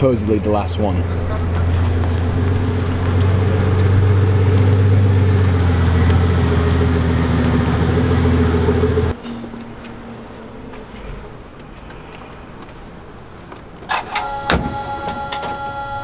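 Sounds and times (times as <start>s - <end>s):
car engine running at low revs: 0.2s - 9.9s.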